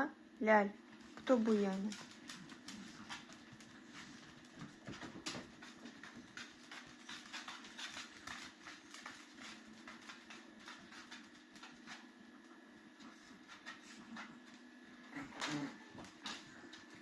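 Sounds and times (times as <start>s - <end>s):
steady low hum: 0.0s - 17.0s
dog claws clicking and scratching: 1.0s - 12.3s, 15.3s - 17.0s.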